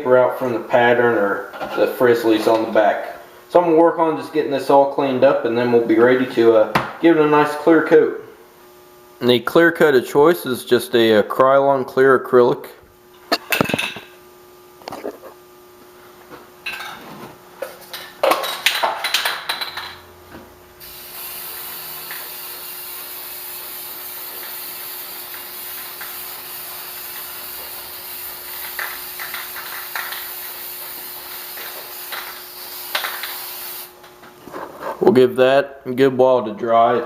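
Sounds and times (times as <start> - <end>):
aerosol can spraying hiss: 20.8 - 33.9.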